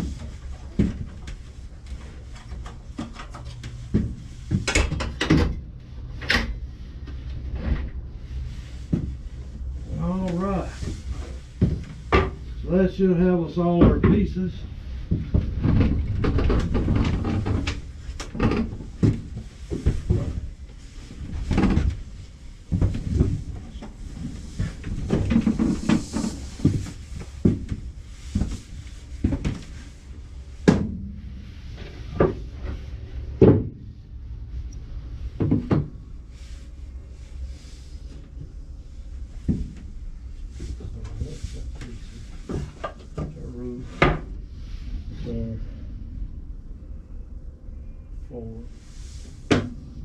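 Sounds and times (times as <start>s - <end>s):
wooden knocks and clatters: 15.0s - 29.9s, 33.4s - 33.8s, 35.4s - 36.0s.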